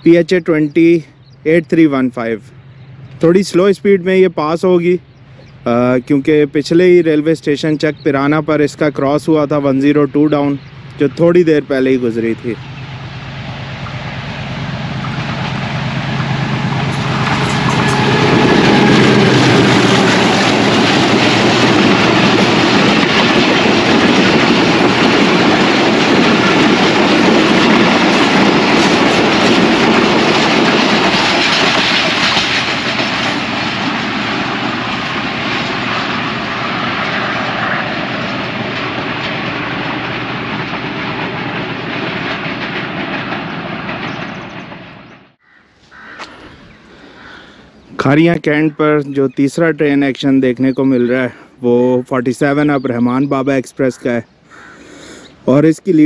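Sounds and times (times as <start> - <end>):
locomotive engine: 0.0 - 53.3
train wheels rolling on rails: 2.6 - 45.4.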